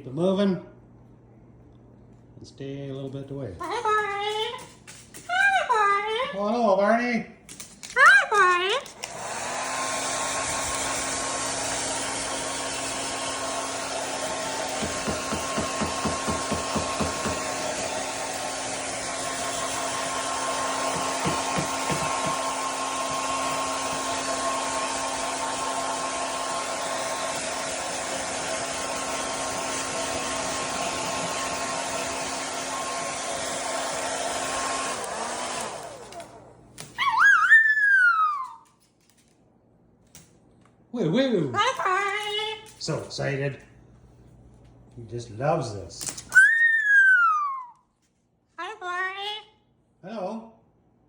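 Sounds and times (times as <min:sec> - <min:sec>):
hair dryer running: 0:08.4 - 0:38.6.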